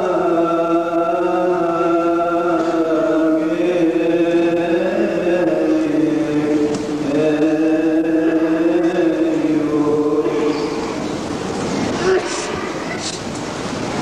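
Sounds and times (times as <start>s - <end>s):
man chanting: 0.0s - 10.9s.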